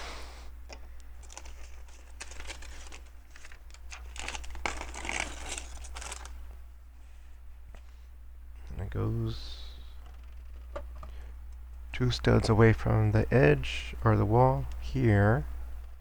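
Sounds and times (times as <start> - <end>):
plastic bag crinkling: 1.2 - 6.4.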